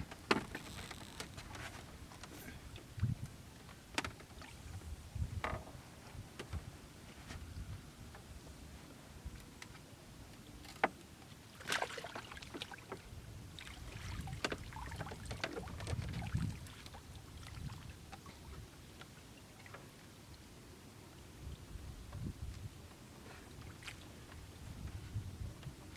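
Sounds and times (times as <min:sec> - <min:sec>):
splashing in water: 0:11.5 - 0:13.0, 0:13.6 - 0:17.9.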